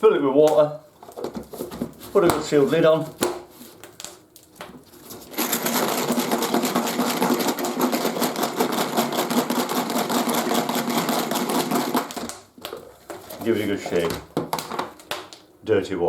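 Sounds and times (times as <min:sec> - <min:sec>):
drill bits rattling in container: 0:05.2 - 0:12.3.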